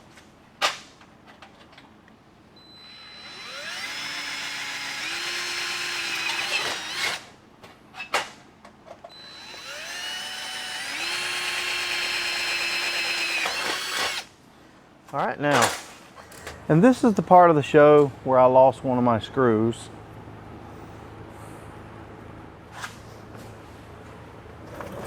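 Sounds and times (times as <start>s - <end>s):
electric drill whining: 2.7s - 7.2s, 9.1s - 14.3s.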